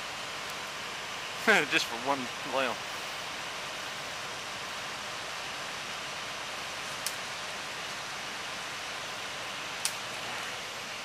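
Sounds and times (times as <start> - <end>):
sharp click: 9.8 - 10.0.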